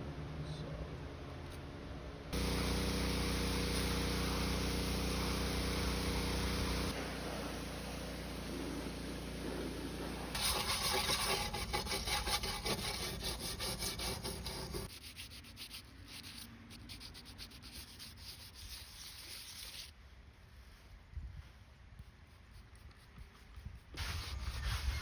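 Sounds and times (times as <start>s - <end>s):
steady low hum: 0.0s - 14.9s
scraping gasket material: 10.0s - 19.9s.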